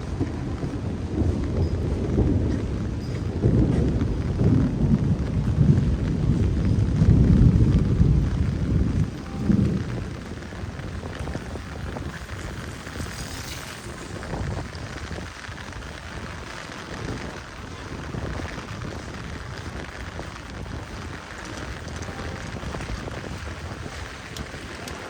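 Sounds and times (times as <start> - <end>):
heavy rain on street: 0.0 - 25.0
low rumble: 0.0 - 25.0.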